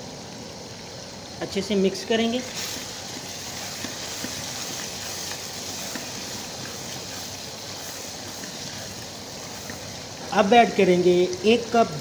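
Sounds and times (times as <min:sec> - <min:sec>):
food sizzling in a wok: 0:00.0 - 0:12.0
spatula ticks: 0:02.6 - 0:10.0.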